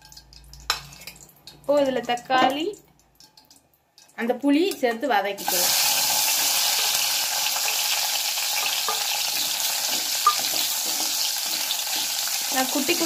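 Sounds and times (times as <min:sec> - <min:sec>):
vegetables sizzling in oil: 0:04.2 - 0:13.0.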